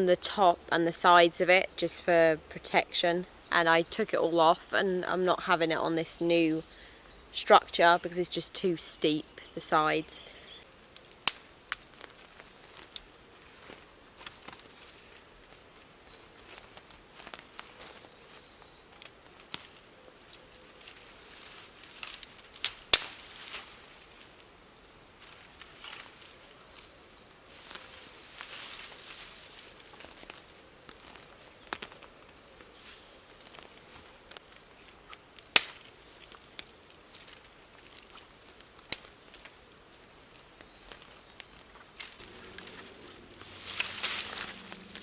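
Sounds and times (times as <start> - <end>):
twigs and leaves rustling: 0.0 - 45.0
sticks snapping: 10.9 - 13.1, 21.8 - 23.7, 29.8 - 32.1, 33.3 - 39.6, 40.2 - 45.0.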